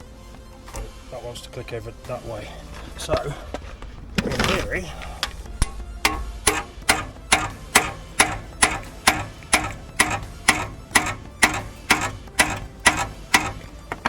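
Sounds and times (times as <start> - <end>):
hammer striking metal impact driver: 5.5 - 14.0.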